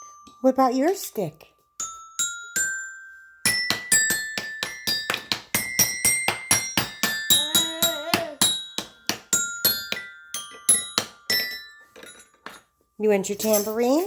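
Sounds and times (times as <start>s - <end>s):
toy xylophone struck with mallet: 1.8s - 11.9s.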